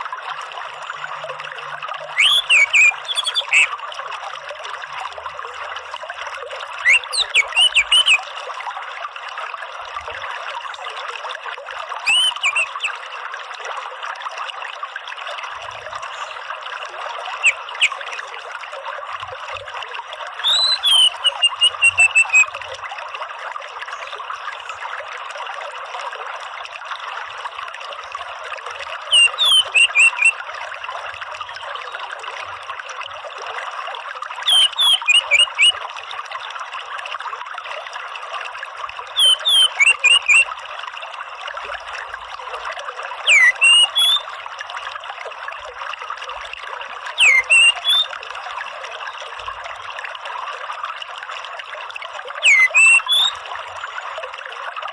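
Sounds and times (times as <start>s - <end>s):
running water: 0.0s - 54.9s
thrush chirping: 2.2s - 3.7s, 12.0s - 12.9s.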